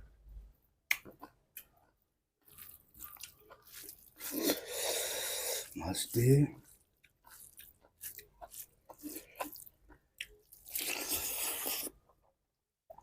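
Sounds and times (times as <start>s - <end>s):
wet mouth clicks: 0.9s - 1.7s
person chewing food: 0.9s - 12.3s.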